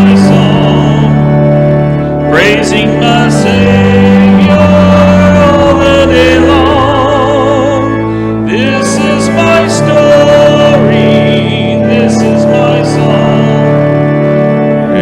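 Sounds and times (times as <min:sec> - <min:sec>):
organ chords: 0:00.0 - 0:15.0
voices singing a hymn: 0:00.0 - 0:15.0.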